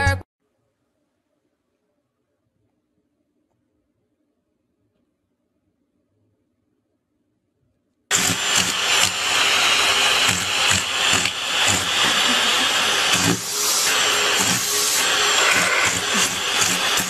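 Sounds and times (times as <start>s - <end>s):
vacuum cleaner suction: 8.1s - 17.0s.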